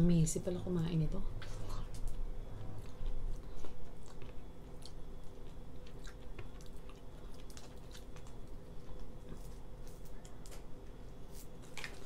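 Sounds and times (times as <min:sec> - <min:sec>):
low steady hum: 0:00.0 - 0:12.0
person chewing: 0:01.5 - 0:10.6.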